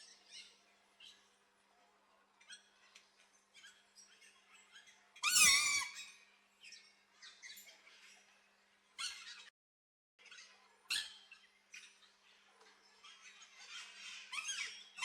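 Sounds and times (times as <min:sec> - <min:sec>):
small birds chirping: 0:00.0 - 0:09.5, 0:10.2 - 0:15.0
macaw harsh squawk: 0:05.2 - 0:06.1.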